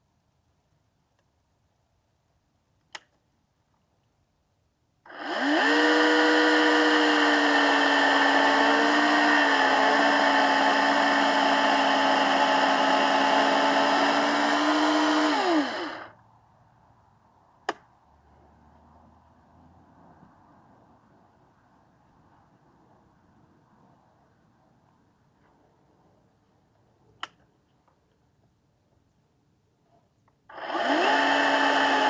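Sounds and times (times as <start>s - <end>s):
electric chainsaw cutting wood: 5.1s - 16.1s, 30.5s - 32.0s.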